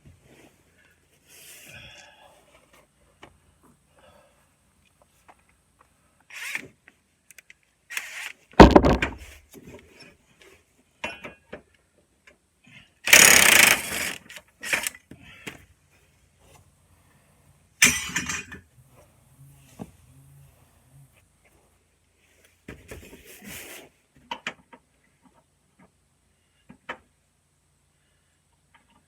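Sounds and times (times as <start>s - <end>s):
power tool bursts: 7.9s - 8.8s, 13.1s - 15.0s
heavy thump: 8.6s - 9.3s.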